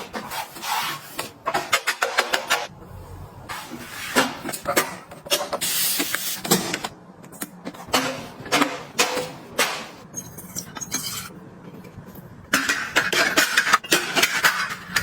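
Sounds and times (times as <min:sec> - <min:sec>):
clicks and knocks of household items: 0:01.2 - 0:02.7, 0:12.5 - 0:15.0.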